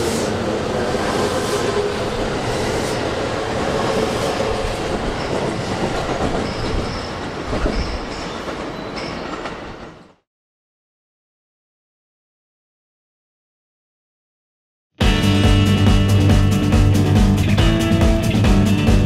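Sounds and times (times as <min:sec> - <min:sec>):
electric train wheels rolling: 0:00.0 - 0:10.0.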